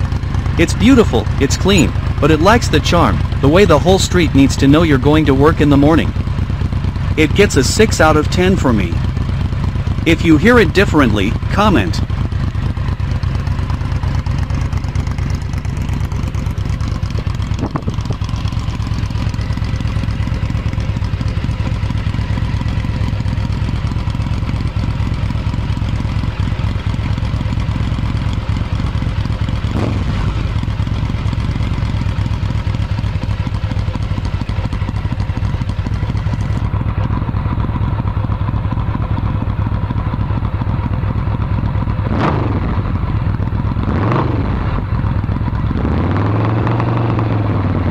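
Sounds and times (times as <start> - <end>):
engine revving: 0.0 - 9.3, 28.8 - 31.7, 42.0 - 43.0, 43.7 - 47.9
motorcycle engine idling: 0.0 - 47.9.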